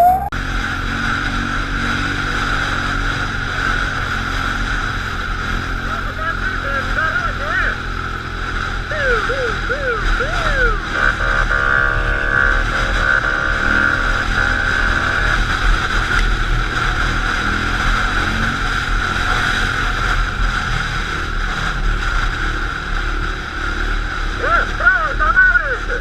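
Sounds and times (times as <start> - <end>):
siren yelping and blaring: 0.0 - 0.4, 8.9 - 12.3
vehicle engine droning: 0.0 - 26.0.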